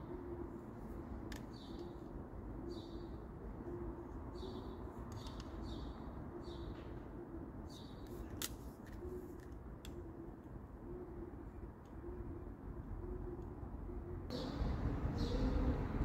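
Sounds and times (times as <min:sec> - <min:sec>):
bird cooing: 0:00.0 - 0:00.5, 0:10.0 - 0:14.6
bird chirping: 0:14.3 - 0:15.9.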